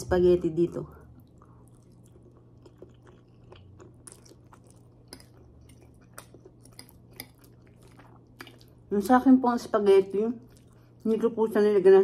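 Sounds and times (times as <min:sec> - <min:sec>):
person chewing spaghetti: 0:01.0 - 0:08.9, 0:10.4 - 0:11.1.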